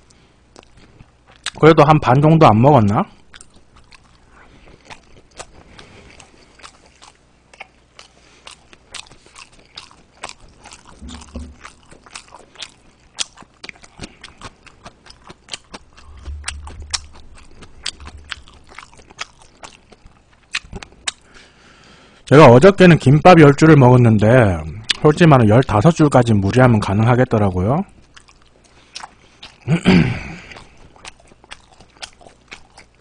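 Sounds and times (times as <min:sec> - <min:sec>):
man chewing food: 0:00.0 - 0:01.6, 0:02.9 - 0:22.2, 0:27.9 - 0:33.0.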